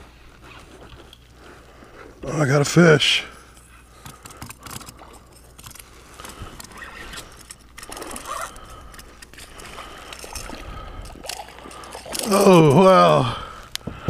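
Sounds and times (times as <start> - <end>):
fishing reel clicks and rattles: 3.5 - 12.8.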